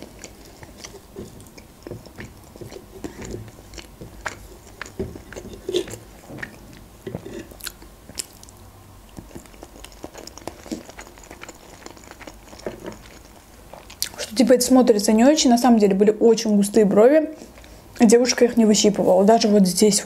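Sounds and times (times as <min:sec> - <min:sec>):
person chewing: 0:00.0 - 0:14.2.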